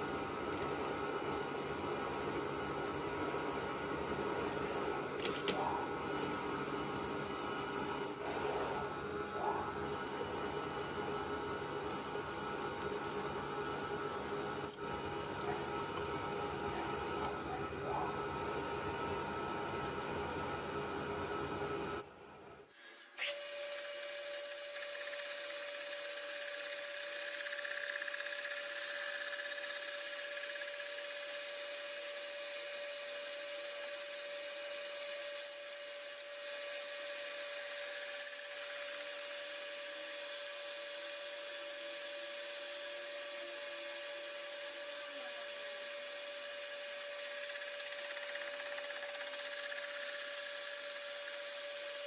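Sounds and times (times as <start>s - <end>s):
machine tool whine: 9.8s - 17.3s, 22.7s - 52.0s.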